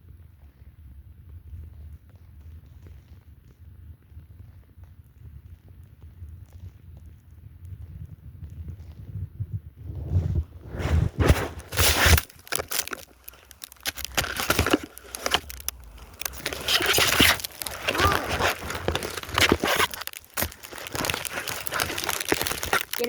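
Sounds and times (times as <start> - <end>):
phone handling noise in snow: 10.6 - 23.0.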